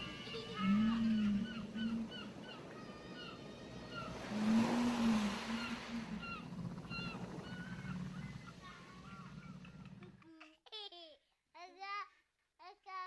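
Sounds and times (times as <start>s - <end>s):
low moaning tone: 0.0s - 2.4s, 3.8s - 10.2s
ocean waves washing on shore: 0.0s - 9.9s
seagulls crying: 0.0s - 10.0s.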